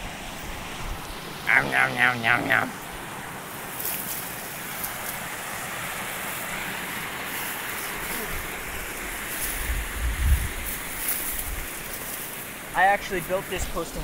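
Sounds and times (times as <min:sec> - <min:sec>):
waterfall rushing: 0:00.0 - 0:14.0
low rumbling bumps: 0:09.5 - 0:11.7.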